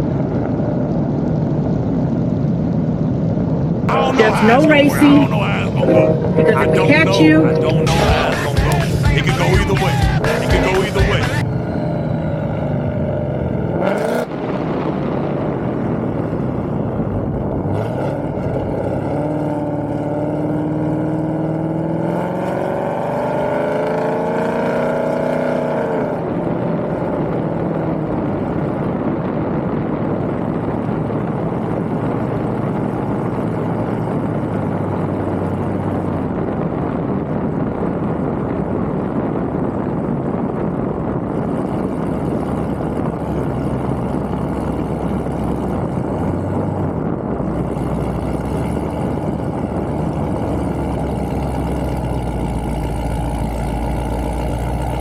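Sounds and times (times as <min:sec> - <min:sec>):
car engine at full throttle: 0:00.0 - 0:55.0
wind noise: 0:10.6 - 0:20.4, 0:25.8 - 0:55.0.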